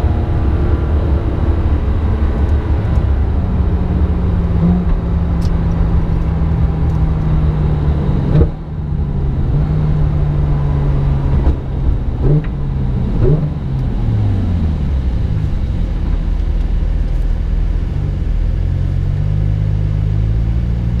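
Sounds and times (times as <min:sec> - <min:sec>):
car engine running low: 0:00.0 - 0:21.0.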